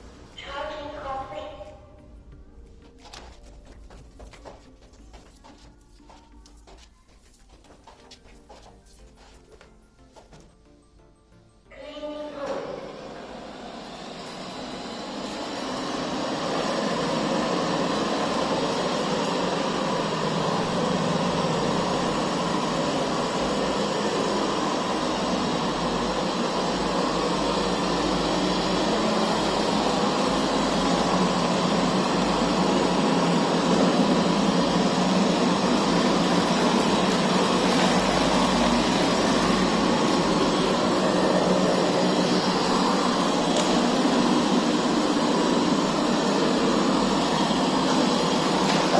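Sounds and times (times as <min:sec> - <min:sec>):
robot vacuum running: 0:12.3 - 0:48.9.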